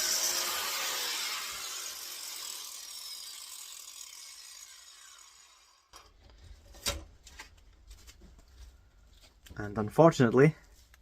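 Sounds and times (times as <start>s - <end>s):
angle grinder spinning down: 0.0s - 6.1s.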